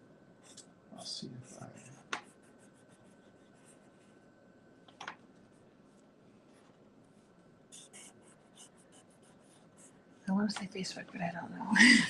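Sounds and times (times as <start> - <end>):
pen scratching on paper: 1.4 - 4.2, 7.7 - 9.9.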